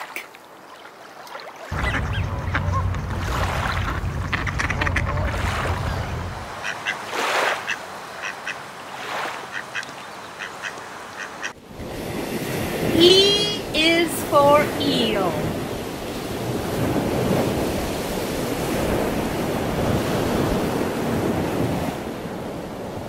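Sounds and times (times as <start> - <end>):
low rumbling noise: 1.7 - 6.6
ducks quacking: 1.7 - 8.6, 9.4 - 11.6.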